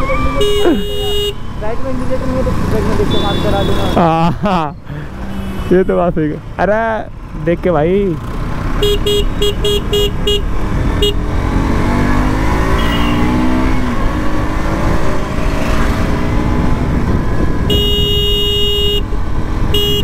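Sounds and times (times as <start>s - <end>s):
horn tooting: 0.0s - 1.9s, 2.8s - 4.4s, 5.0s - 6.3s, 8.8s - 11.3s, 12.6s - 13.6s, 17.6s - 19.1s, 19.7s - 20.0s
motorcycle engine accelerating: 0.0s - 5.5s, 7.0s - 19.8s
wind noise on microphone: 16.0s - 18.8s.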